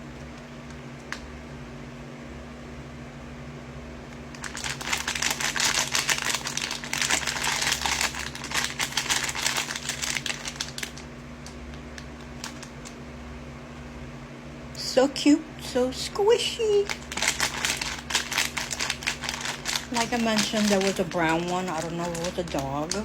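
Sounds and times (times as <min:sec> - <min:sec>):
packaging crinkling: 0:04.3 - 0:13.0, 0:16.7 - 0:23.0.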